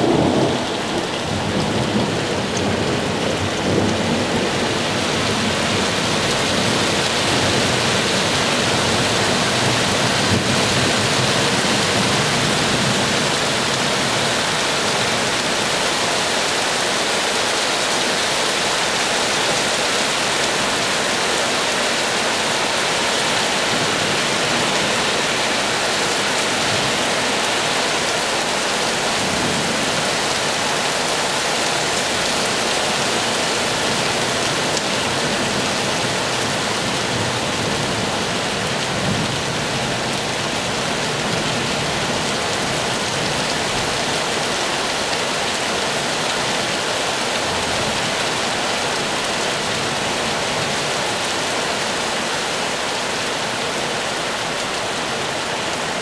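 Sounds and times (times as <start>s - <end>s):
distant thunder rumbles: 0.0s - 6.8s
heavy rain pouring: 0.0s - 56.0s.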